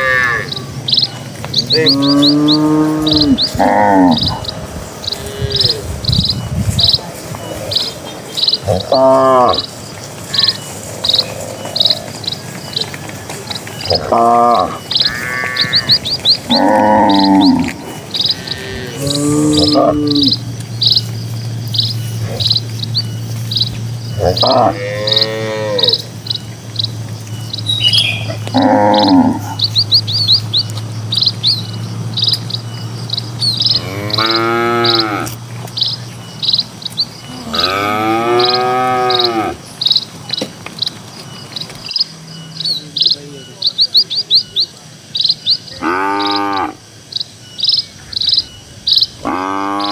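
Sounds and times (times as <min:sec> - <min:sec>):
cattle mooing: 0:00.0 - 0:00.8, 0:01.5 - 0:06.0, 0:08.6 - 0:12.3, 0:13.7 - 0:21.1, 0:21.9 - 0:35.6, 0:37.2 - 0:39.7, 0:45.8 - 0:46.8, 0:49.2 - 0:49.9
small birds chirping: 0:00.0 - 0:49.9.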